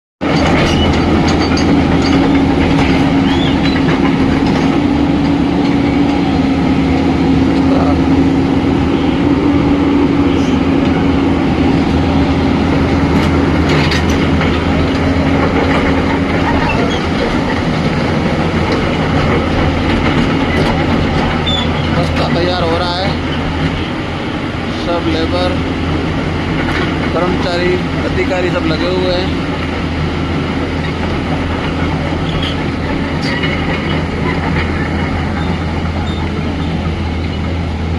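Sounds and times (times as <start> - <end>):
metal clanks: 0.2 - 6.2, 13.0 - 23.8
heavy machinery engine running: 0.2 - 37.9.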